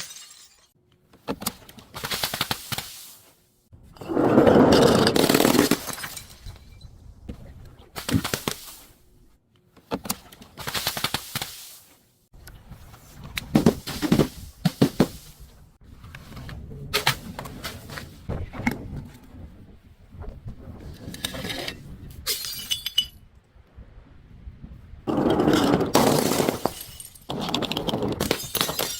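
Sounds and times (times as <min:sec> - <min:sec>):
glass pieces crackling: 0:00.0 - 0:00.7
glass bottles shattering: 0:00.0 - 0:00.8, 0:05.1 - 0:06.8, 0:22.3 - 0:23.2, 0:25.8 - 0:27.4, 0:28.2 - 0:28.9.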